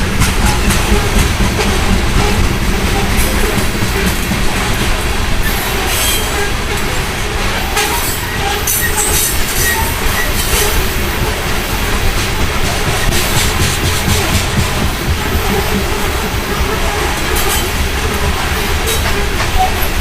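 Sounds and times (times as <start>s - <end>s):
wheels rumbling on rail: 0.0s - 20.0s
high-pitched wheel squeals: 7.6s - 11.4s.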